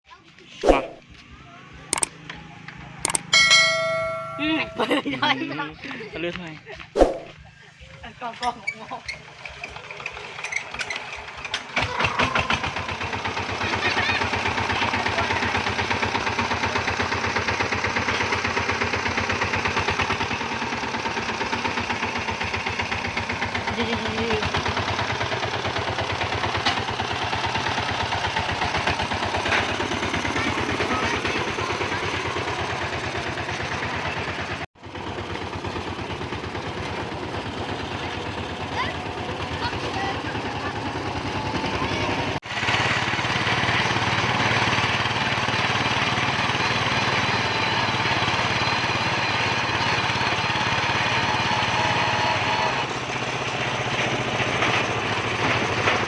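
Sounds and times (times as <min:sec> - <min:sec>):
hand tractor engine chugging: 0:07.9 - 0:42.8.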